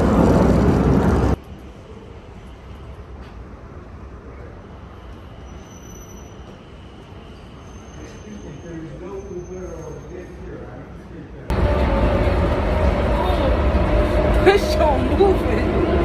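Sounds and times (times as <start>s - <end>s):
loud rushing noise: 0.0s - 1.4s, 11.5s - 16.0s
train car rumbling: 0.0s - 10.1s, 11.5s - 16.0s.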